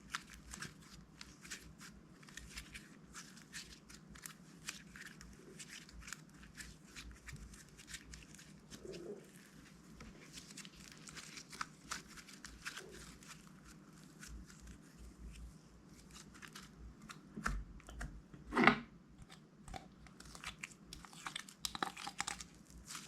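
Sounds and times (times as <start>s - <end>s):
slime crackling and popping: 19.2s - 23.0s.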